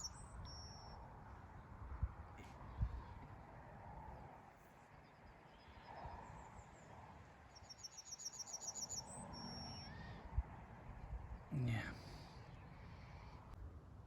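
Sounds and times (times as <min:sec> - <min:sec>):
yellowhammer singing: 0:07.5 - 0:10.2.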